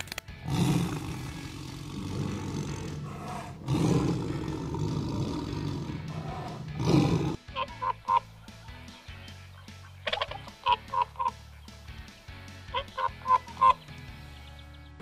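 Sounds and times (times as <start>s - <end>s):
tiger roaring: 0.4s - 7.4s.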